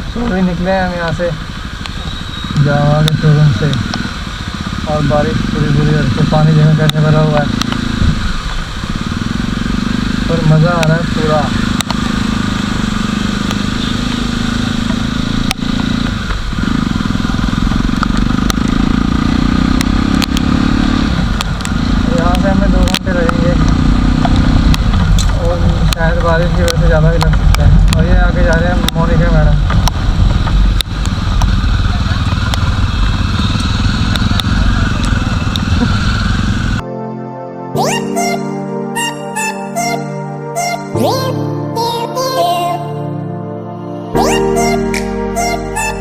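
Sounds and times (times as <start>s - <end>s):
motorcycle engine running: 0.0s - 36.9s
sharp clicks: 6.8s - 7.8s, 19.7s - 20.5s
wind and rain noise on microphone: 7.6s - 9.3s, 23.7s - 36.4s.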